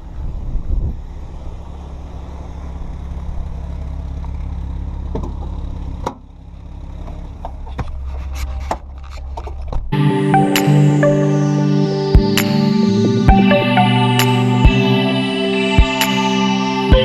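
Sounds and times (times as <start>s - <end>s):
car engine running: 0.0s - 10.0s
sharp clicks: 10.5s - 11.0s, 12.3s - 12.8s.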